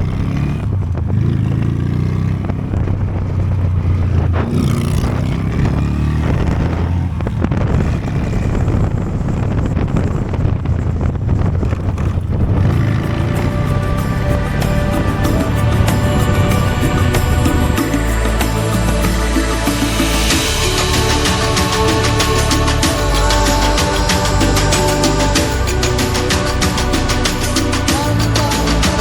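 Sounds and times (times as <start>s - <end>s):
motorcycle engine accelerating: 0.0s - 29.0s
music: 12.8s - 29.0s.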